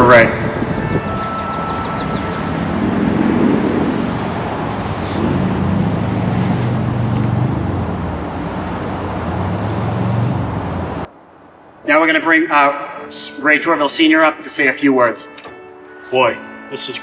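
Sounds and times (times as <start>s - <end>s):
vehicle engines humming: 0.0s - 11.8s
road rumble: 0.0s - 13.0s.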